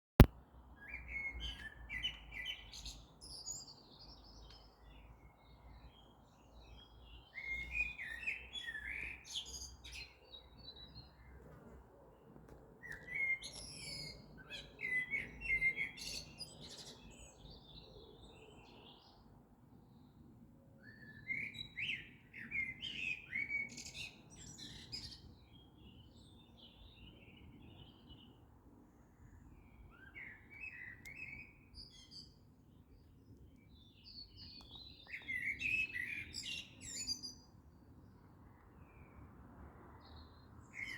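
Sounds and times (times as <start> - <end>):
songbirds chirping: 0.6 - 40.9.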